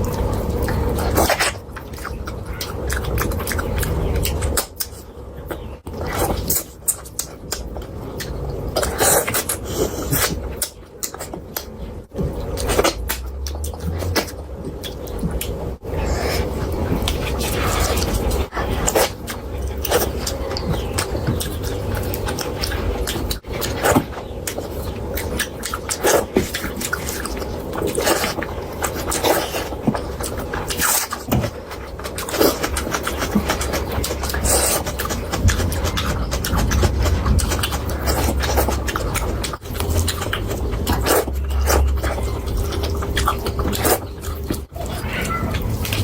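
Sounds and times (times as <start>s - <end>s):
low steady hum: 0.0s - 46.0s
wet chewing: 0.0s - 46.0s.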